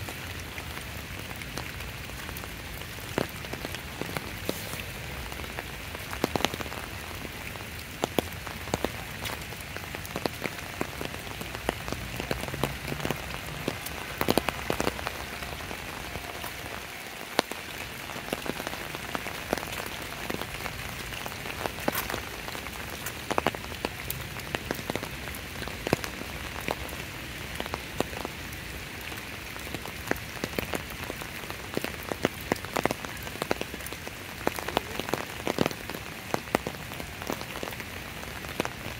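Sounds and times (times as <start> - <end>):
steady rain hiss: 0.0 - 38.9
raindrops clicking: 0.1 - 28.4.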